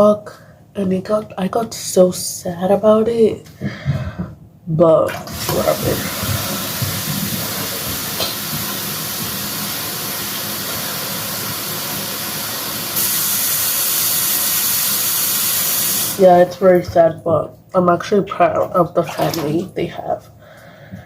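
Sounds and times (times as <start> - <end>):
tap water running into container: 5.1 - 17.0, 18.6 - 19.7.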